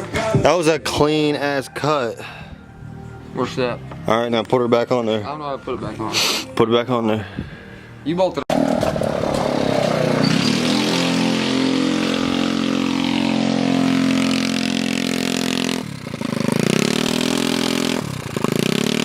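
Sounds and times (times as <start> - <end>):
motorbike engine revving: 8.5 - 19.0.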